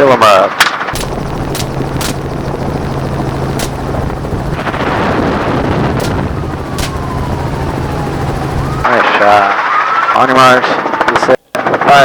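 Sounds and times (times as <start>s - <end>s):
helicopter rotor and engine: 0.8s - 9.5s
gunshots: 1.0s - 8.5s.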